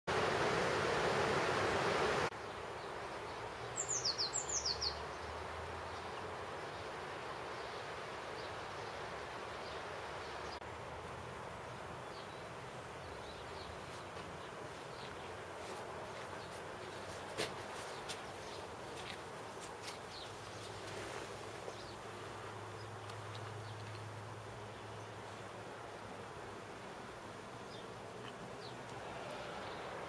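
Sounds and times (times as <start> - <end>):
steady outdoor hiss: 0.1 - 30.0.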